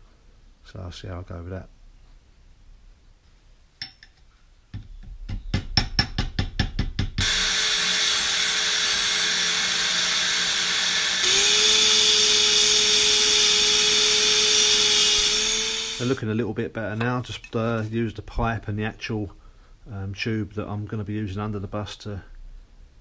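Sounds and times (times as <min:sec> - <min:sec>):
hammer tapping on steel: 0:04.8 - 0:07.2
power tool whining: 0:07.2 - 0:16.2.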